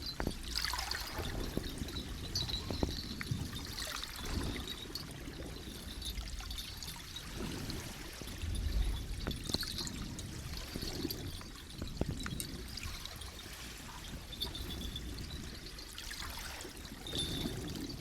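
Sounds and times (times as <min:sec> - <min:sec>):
seawater sloshing: 0:00.0 - 0:18.0.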